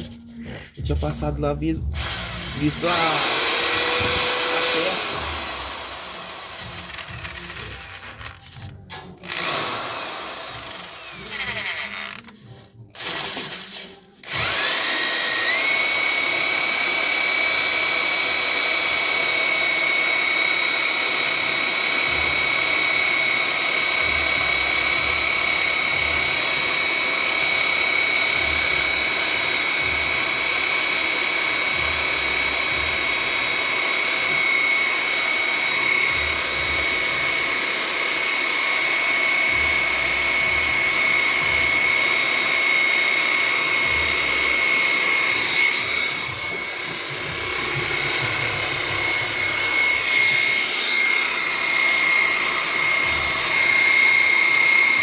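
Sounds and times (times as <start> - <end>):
power tool motor whine: 1.9 - 55.0.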